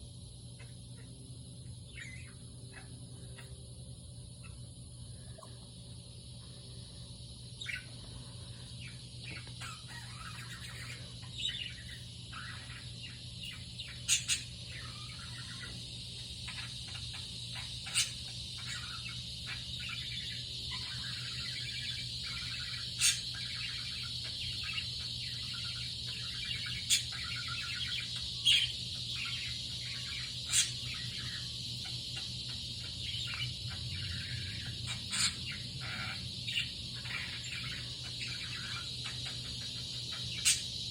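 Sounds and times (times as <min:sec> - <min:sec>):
sharp loud bird chirp: 0:08.8 - 0:40.9.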